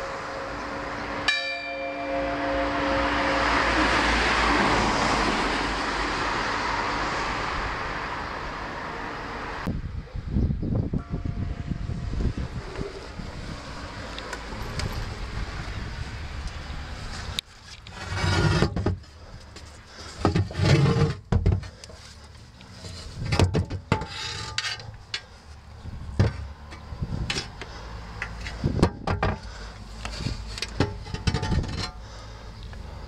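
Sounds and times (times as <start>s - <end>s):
wooden beams scraping: 17.0s - 25.6s.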